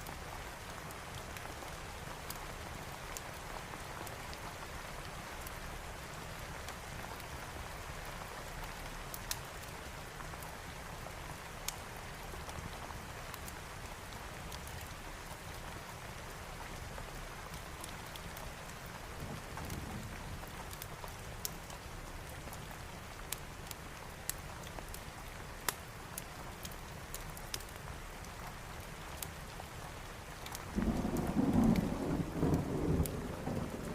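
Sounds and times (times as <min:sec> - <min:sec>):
rain falling: 0:00.0 - 0:33.9
wood fire crackling: 0:00.1 - 0:33.9.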